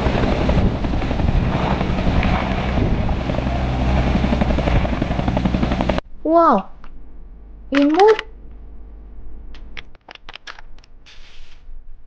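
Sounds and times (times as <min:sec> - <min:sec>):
helicopter rotor and engine: 0:00.0 - 0:06.0.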